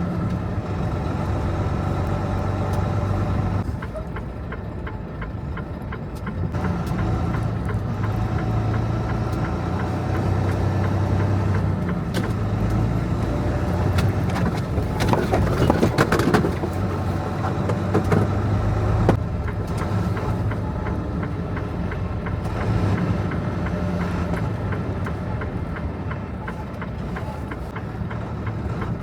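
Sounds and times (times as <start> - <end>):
truck engine humming: 0.0 - 29.0
clicks and rattles: 13.9 - 18.4.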